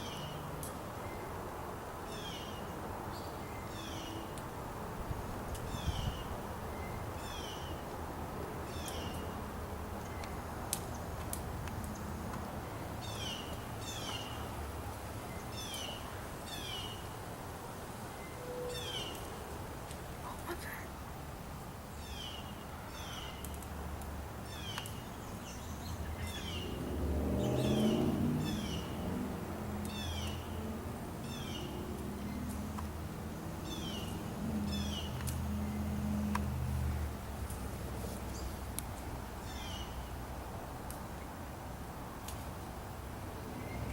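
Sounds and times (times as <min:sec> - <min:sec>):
birds calling: 0:24.4 - 0:29.2, 0:33.6 - 0:35.9.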